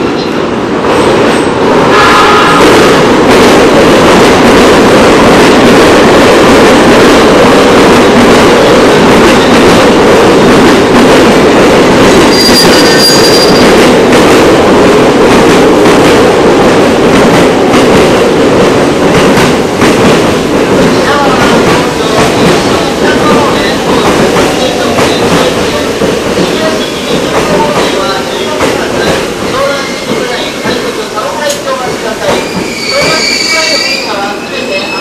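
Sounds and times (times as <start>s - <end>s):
train wheels rushing on rail: 0.0s - 35.0s
high squeal: 12.3s - 13.7s, 32.4s - 35.0s.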